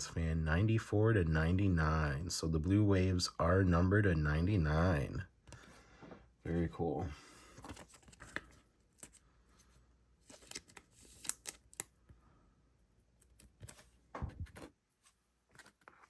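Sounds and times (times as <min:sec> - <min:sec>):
trading cards sliding and clicking: 0:07.6 - 0:11.9.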